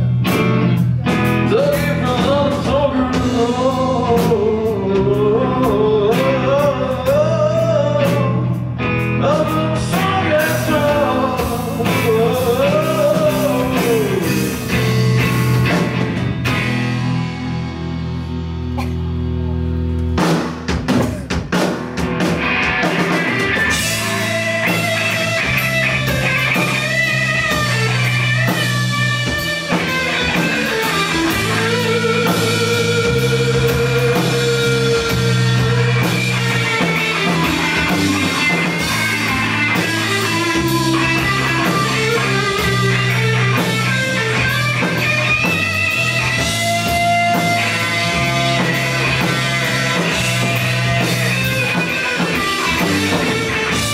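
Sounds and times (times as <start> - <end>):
electric guitar bending melody: 0.0 - 53.9
rock band playing: 0.0 - 53.9
drum hits: 20.2 - 40.4.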